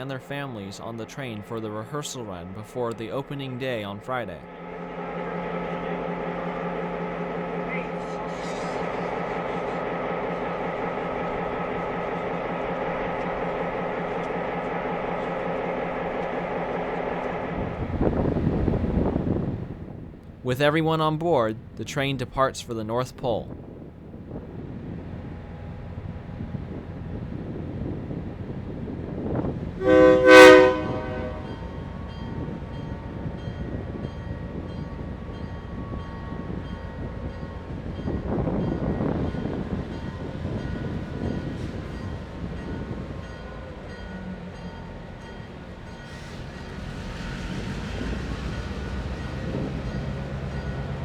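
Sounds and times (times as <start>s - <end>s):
diesel locomotive idling: 0.0s - 51.0s
train rumble: 0.0s - 51.0s
locomotive air horn blast: 4.8s - 11.2s, 29.8s - 31.8s.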